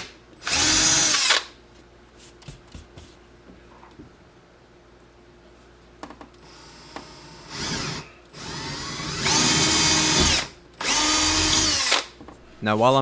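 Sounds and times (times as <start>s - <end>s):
power drill drilling wood: 0.4s - 1.4s, 6.4s - 12.1s.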